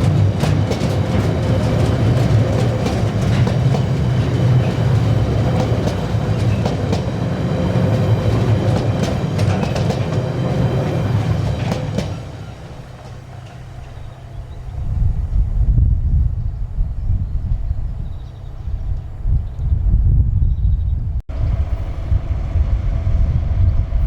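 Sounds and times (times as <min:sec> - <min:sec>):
wheels clicking over rail joints: 0:00.0 - 0:14.8
train passing with rumble: 0:00.0 - 0:20.4, 0:21.0 - 0:24.0.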